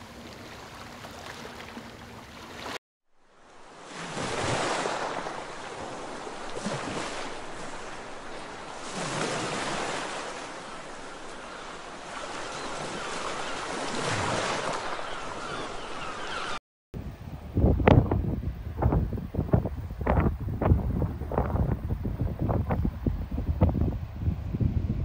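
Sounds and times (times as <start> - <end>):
waves breaking on sandy beach: 0.0 - 16.6.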